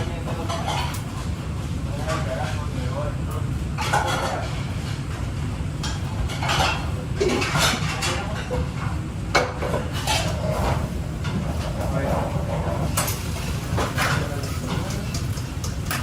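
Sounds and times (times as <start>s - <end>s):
kitchen utensils clinking: 5.8s - 8.7s, 9.4s - 16.0s.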